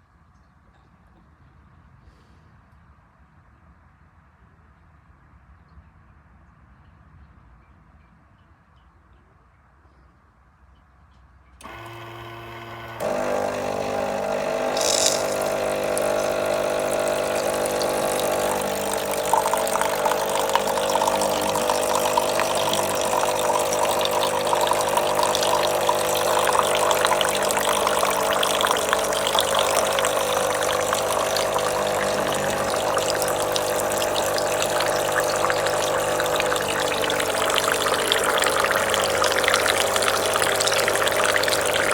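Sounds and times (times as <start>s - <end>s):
coffee machine pump humming: 11.6s - 41.9s.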